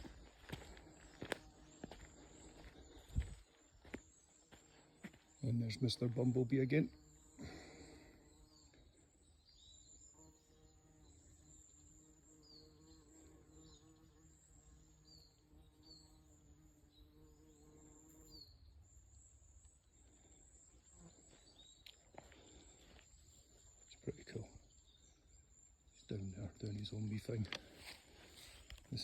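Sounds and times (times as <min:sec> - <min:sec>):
bumblebee buzzing: 0:09.6 - 0:18.6.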